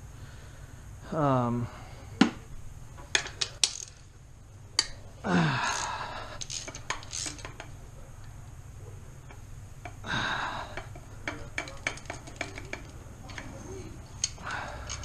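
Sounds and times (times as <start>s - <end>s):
metal tools clanking: 10.6s - 15.0s.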